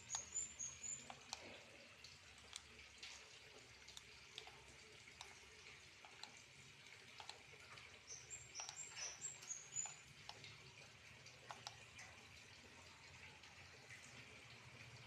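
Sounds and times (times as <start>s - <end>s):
sharp clicks: 0.0s - 1.5s, 7.1s - 7.4s, 8.1s - 10.5s, 11.4s - 11.9s
pond water trickling: 0.0s - 15.0s.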